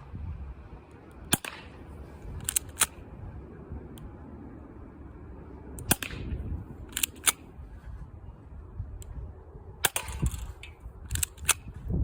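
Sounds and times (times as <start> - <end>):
airsoft pistol firing: 1.3 - 1.8, 5.8 - 7.4, 9.8 - 10.6.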